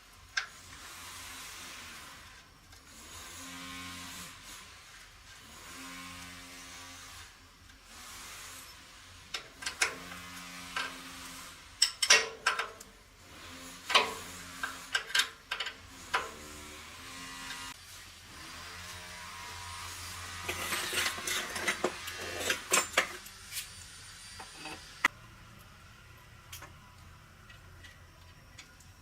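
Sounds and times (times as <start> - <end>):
metal tools knocking and clinking: 11.8 - 12.8.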